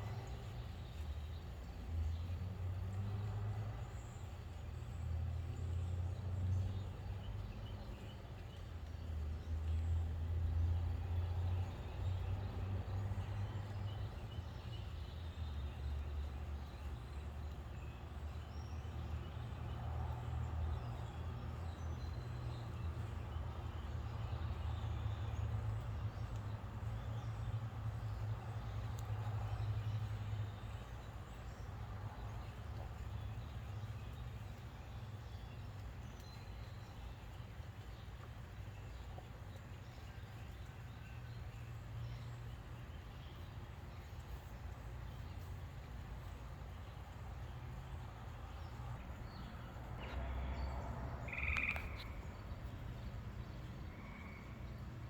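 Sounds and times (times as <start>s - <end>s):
vehicle engines rumbling: 0.0s - 55.0s
faint bird chirps: 50.0s - 52.5s.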